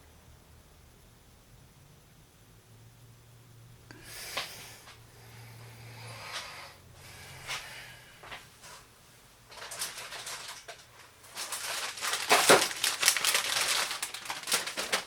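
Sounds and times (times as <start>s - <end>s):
handling rustling and crinkling: 9.5s - 15.0s.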